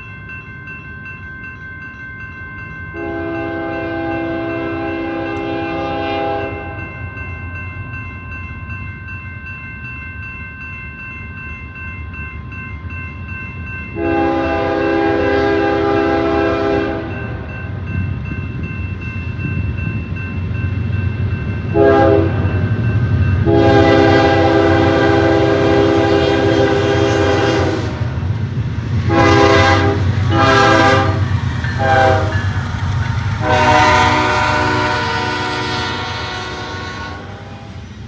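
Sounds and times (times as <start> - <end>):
passing train rumble: 0.0 - 38.0
locomotive air horn blasts: 3.0 - 6.8, 14.0 - 17.1, 21.8 - 22.4, 23.4 - 28.3, 29.0 - 32.5, 33.3 - 37.8.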